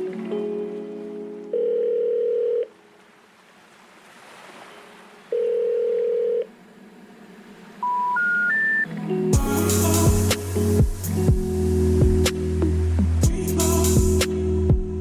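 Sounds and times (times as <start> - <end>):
steady telephone tone: 1.5 - 2.8, 5.3 - 6.5, 7.8 - 8.9
rising three-note beeps: 7.8 - 8.9.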